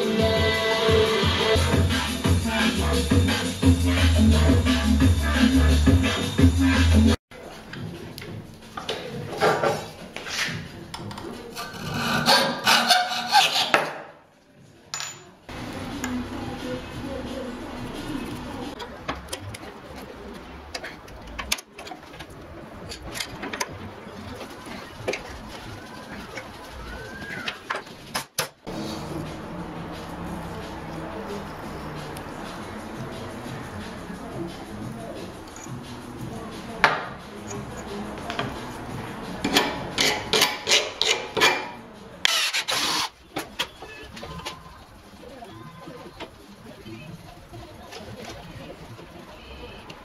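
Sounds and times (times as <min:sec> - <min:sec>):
metal rods and tools clicking on wood: 0:39.4 - 0:44.6.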